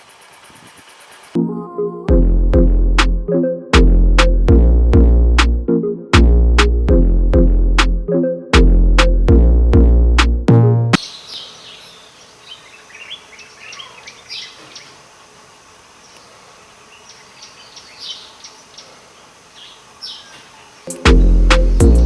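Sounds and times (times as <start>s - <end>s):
birds chirping and whistling: 11.0s - 14.9s, 17.0s - 19.0s, 19.6s - 22.0s
faint steady hiss: 11.0s - 22.0s.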